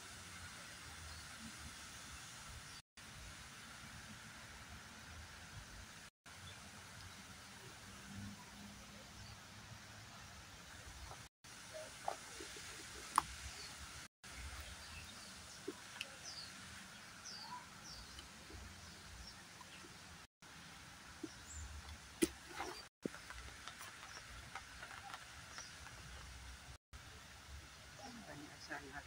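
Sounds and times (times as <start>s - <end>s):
outdoor background noise: 0.0s - 29.0s
birds chirping: 10.0s - 20.3s, 21.1s - 26.8s.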